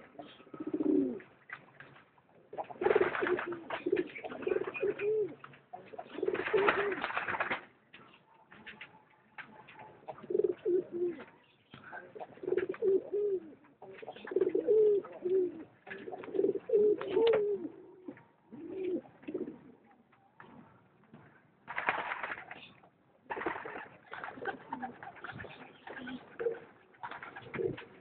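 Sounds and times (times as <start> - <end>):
pigeons cooing: 0.0 - 1.3, 2.5 - 7.0, 10.1 - 11.3, 12.0 - 19.8, 23.3 - 28.0.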